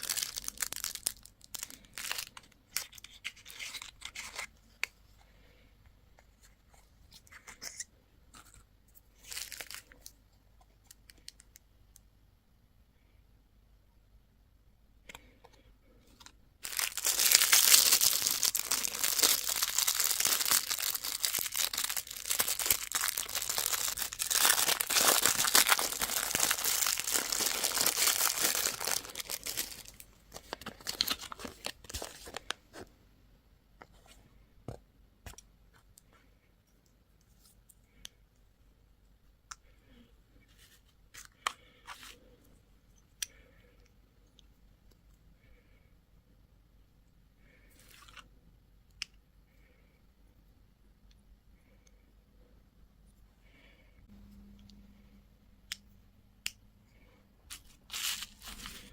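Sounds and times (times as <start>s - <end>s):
candy packaging crinkling: 0.0s - 4.7s, 7.2s - 10.2s, 16.1s - 32.9s, 57.5s - 58.9s.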